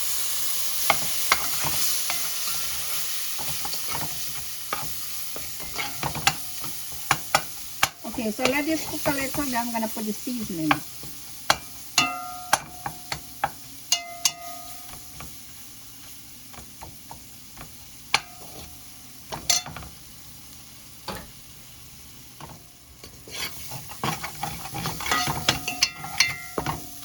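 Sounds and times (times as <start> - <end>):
roux sizzling in a pot: 0.0 - 27.0
spoon knocking against pot: 5.7 - 9.5, 11.5 - 15.3, 25.0 - 26.9.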